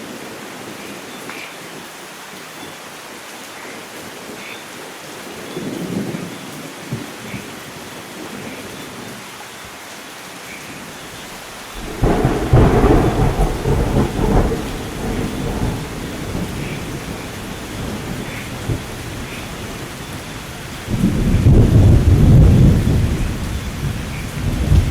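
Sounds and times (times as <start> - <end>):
steady rain falling: 0.0 - 24.9
thunder clap and rumble: 11.8 - 24.9.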